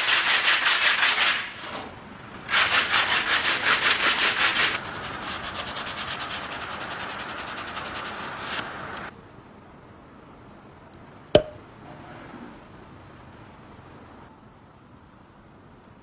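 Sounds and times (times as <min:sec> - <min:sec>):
sharp knock: 0:11.4 - 0:11.6.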